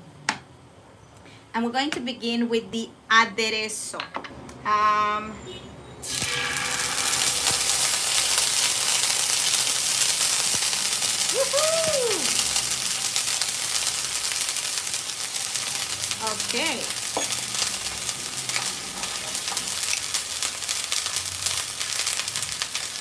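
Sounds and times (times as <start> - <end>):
paste sizzling in hot oil: 6.0 - 23.0.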